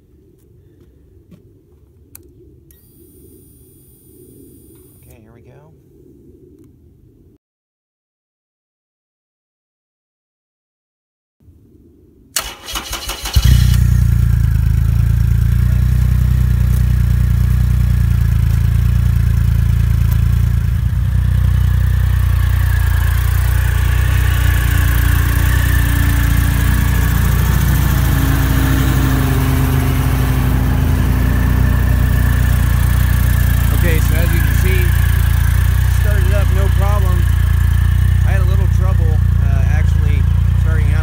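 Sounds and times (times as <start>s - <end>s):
motorcycle starter cranking: 12.4s - 15.4s, 30.8s - 41.0s
motorcycle engine idling: 12.4s - 41.0s.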